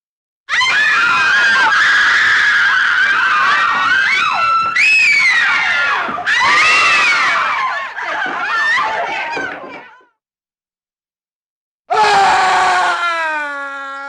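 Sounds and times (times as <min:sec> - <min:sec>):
voices screaming: 0:00.5 - 0:10.0.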